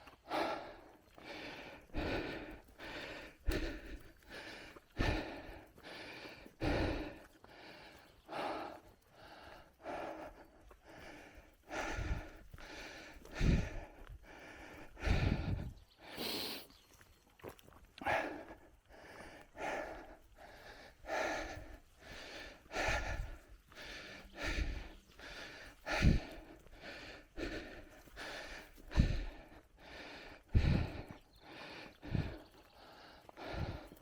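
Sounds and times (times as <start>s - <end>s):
heavy rhythmic breathing: 0.0s - 16.7s, 18.0s - 34.0s.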